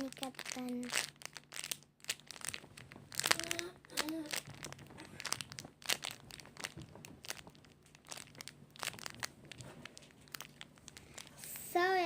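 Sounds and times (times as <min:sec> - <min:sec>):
squishy toy crinkling: 0:00.0 - 0:11.8.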